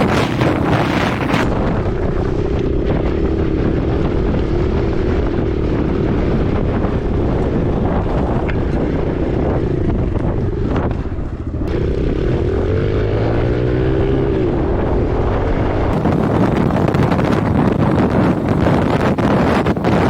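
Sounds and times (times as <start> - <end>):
rushing wind hiss: 0.0 - 10.2, 16.0 - 20.0
dirt bike engine: 0.0 - 20.0
wind buffeting microphone: 0.0 - 20.0.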